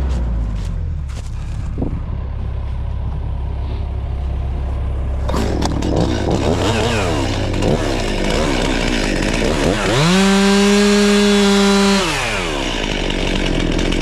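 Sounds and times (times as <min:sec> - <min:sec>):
diesel engine idling: 0:00.0 - 0:10.0
chainsaw revving: 0:05.2 - 0:14.0.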